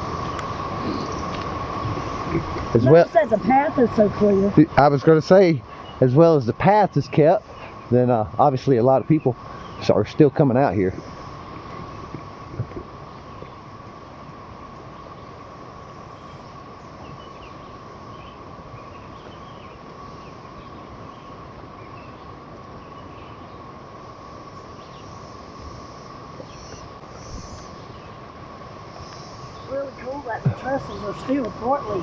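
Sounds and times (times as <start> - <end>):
cicada chorus droning: 0.0 - 32.0
faint bird chirps: 0.2 - 4.8, 5.6 - 8.0, 8.8 - 10.0, 24.4 - 32.0.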